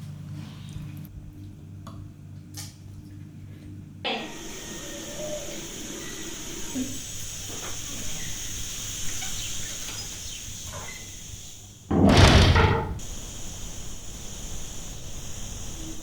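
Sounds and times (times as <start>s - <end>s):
birds calling: 4.2s - 11.7s.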